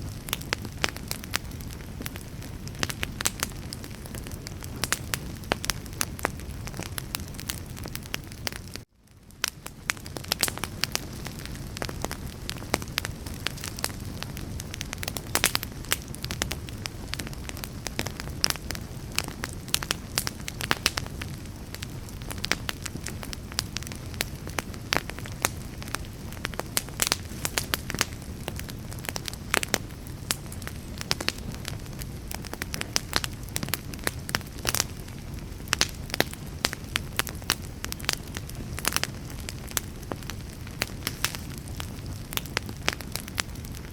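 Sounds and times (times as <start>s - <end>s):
low rush of flames: 0.0s - 43.9s
wood fire crackling and popping: 0.0s - 43.9s.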